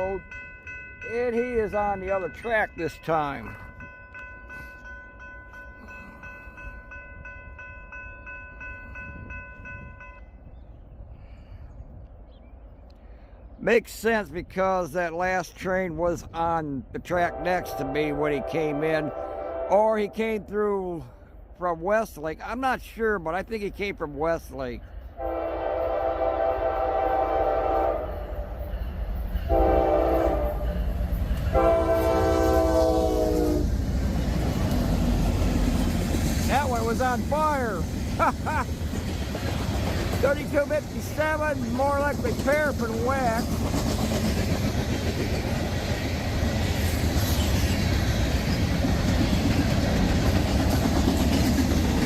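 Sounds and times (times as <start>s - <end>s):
crossing warning bell ringing: 0.0s - 10.5s, 27.1s - 33.7s
low rumble of passing train: 0.0s - 52.0s
locomotive air horn blasts: 17.3s - 19.9s, 25.2s - 28.4s, 29.5s - 30.8s, 31.5s - 33.7s.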